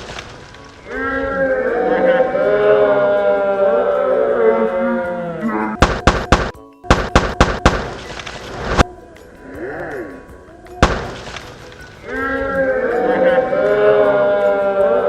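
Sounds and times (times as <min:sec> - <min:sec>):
sharp thuds: 0:05.8 - 0:08.8, 0:10.8 - 0:11.6.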